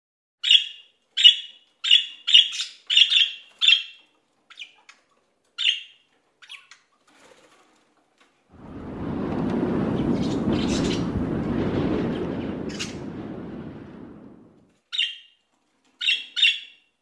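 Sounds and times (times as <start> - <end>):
bird chirping: 14.9 - 15.4, 16.0 - 16.9.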